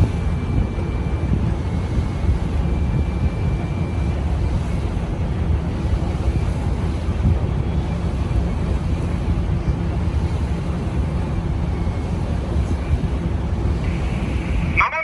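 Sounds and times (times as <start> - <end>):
wind buffeting microphone: 0.0 - 14.8
boat engine rumbling: 0.0 - 15.0.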